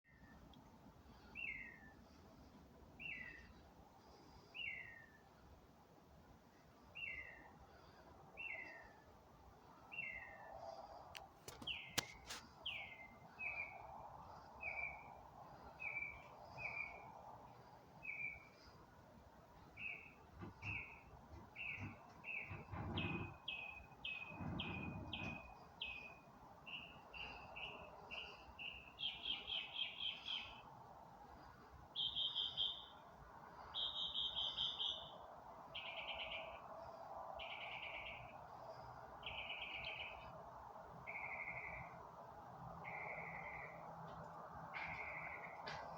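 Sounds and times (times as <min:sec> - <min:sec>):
bird singing: 0:03.0 - 0:03.6, 0:06.8 - 0:09.0, 0:09.9 - 0:10.8, 0:11.5 - 0:17.2, 0:18.0 - 0:18.8, 0:19.7 - 0:30.7, 0:31.4 - 0:40.4, 0:41.0 - 0:42.1, 0:42.7 - 0:44.1, 0:44.7 - 0:45.9
faint sharp clicks: 0:11.1 - 0:12.4.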